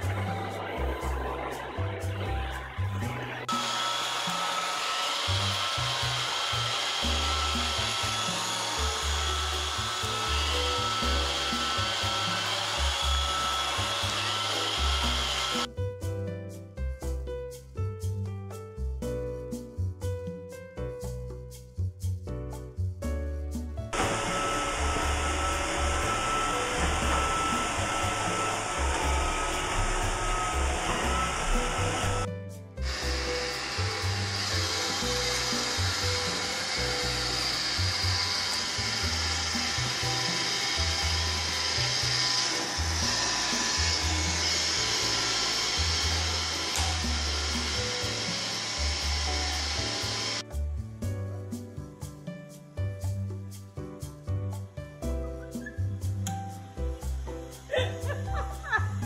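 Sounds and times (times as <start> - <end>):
background music: 0.0 - 59.0
robot vacuum whirring: 2.8 - 15.7, 24.0 - 50.4.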